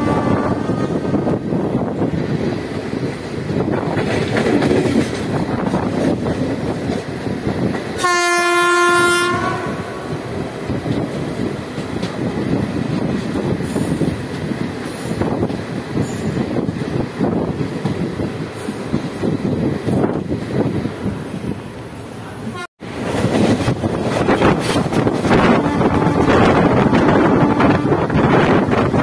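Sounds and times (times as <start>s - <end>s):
locomotive horn blast: 0.0s - 1.0s, 8.0s - 10.3s, 25.3s - 28.2s
train coach rolling over rails: 0.0s - 29.0s.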